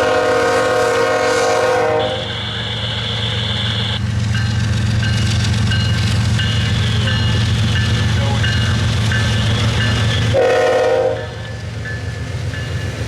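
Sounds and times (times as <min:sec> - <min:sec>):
locomotive horn chord: 0:00.0 - 0:04.0, 0:06.6 - 0:08.6, 0:09.3 - 0:11.5
diesel engines rumbling: 0:00.0 - 0:13.0.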